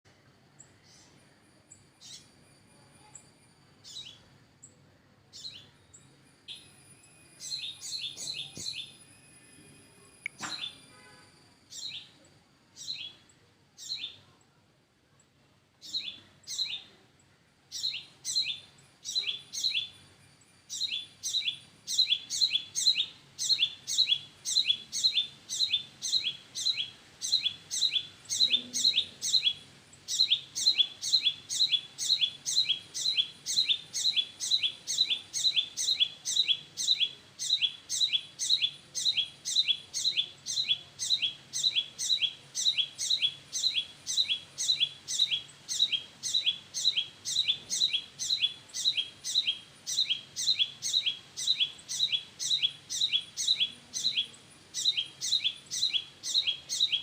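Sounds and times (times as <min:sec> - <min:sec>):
small bird chirping: 0:00.6 - 0:14.6, 0:15.2 - 0:57.0.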